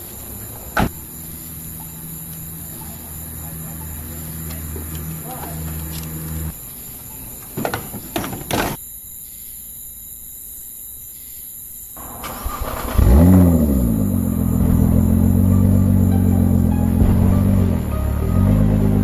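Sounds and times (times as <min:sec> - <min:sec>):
car engine revving then idling: 0:00.1 - 0:06.5, 0:12.0 - 0:19.0.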